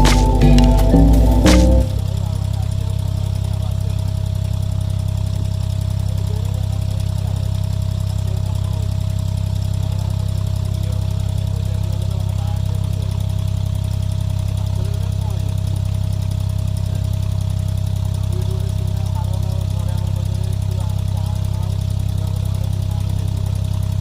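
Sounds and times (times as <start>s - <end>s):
boat engine droning: 0.0s - 2.9s.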